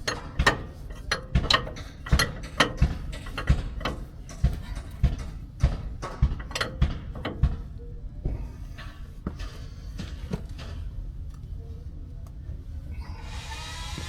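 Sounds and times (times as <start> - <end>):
hand tools knocking on metal: 0.0 - 7.8.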